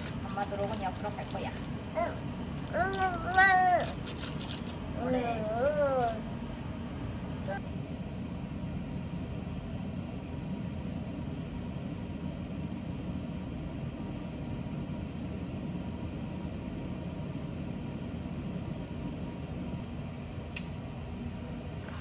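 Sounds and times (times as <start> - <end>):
low rumbling hum: 0.0 - 12.6.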